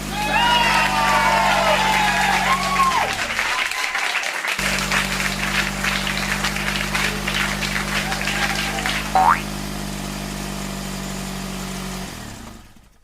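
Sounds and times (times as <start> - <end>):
clapping applause: 0.0 - 9.5.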